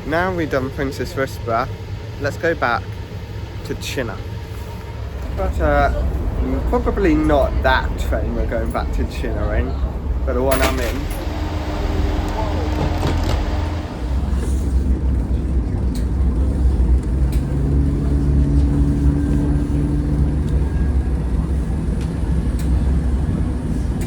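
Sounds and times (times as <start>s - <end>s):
train rumble: 0.0s - 24.0s
humming tone: 9.7s - 21.4s.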